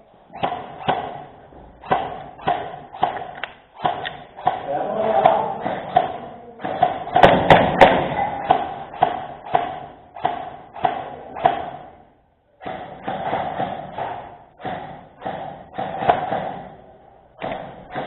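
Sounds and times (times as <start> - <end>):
sharp clicks: 1.8 - 4.6.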